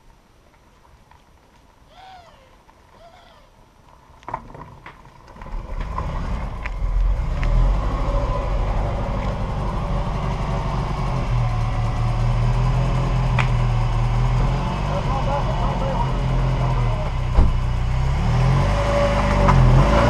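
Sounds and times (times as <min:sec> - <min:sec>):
car engine running at low speed: 0:05.1 - 0:20.0.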